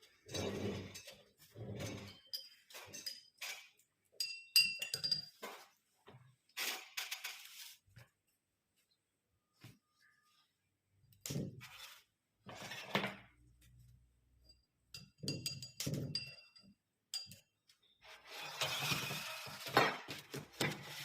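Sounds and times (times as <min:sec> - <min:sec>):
glass items clinking: 0:00.2 - 0:05.7, 0:14.5 - 0:17.5.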